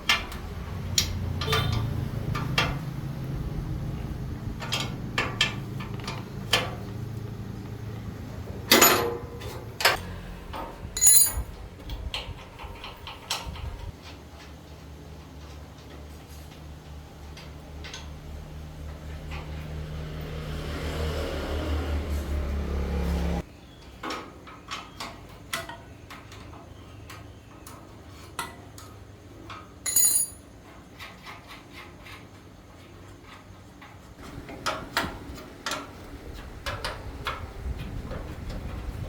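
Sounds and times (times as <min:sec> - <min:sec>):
metal tools clinking: 0:08.7 - 0:09.2, 0:11.0 - 0:11.6, 0:29.9 - 0:30.5.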